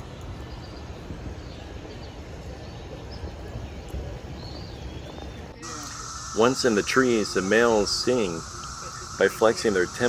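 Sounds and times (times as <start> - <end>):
rustling hiss: 5.6 - 10.0.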